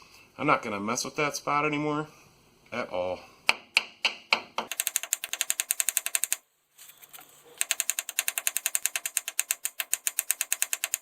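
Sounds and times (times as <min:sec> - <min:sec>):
ratchet wrench clicking: 0:07.6 - 0:11.0.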